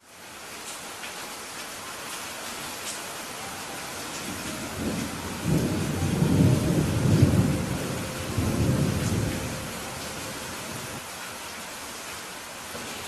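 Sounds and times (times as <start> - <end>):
rain hissing: 0.0 - 13.0
thunder rumbling: 3.8 - 11.0.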